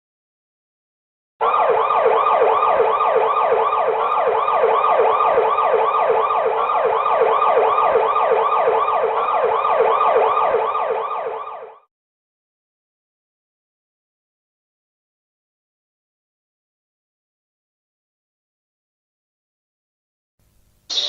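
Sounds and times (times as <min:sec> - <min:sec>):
emergency siren yelping: 0:01.4 - 0:11.9.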